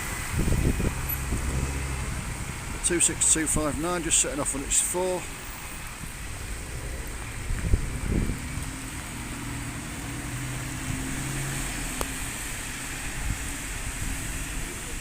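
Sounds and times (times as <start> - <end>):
bus engine pulling away: 0.0 - 15.0
wind thumps on microphone: 0.2 - 2.9, 5.9 - 8.8.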